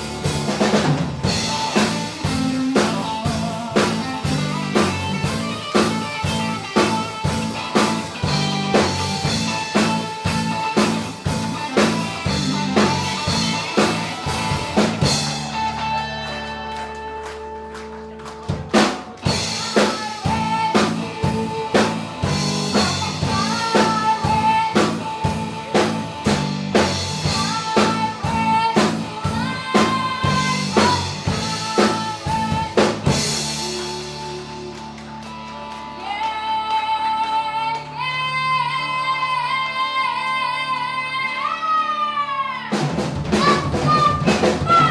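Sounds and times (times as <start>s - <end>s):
drum kit beating: 0.0s - 38.4s, 42.6s - 44.9s
live band music: 0.0s - 44.9s
high singing voice: 19.3s - 26.0s, 27.2s - 34.8s, 35.9s - 44.9s.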